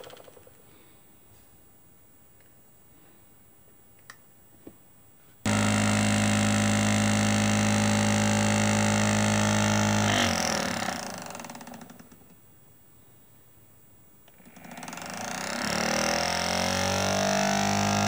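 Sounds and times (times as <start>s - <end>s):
small electric motor humming: 5.5s - 11.9s, 15.1s - 18.0s.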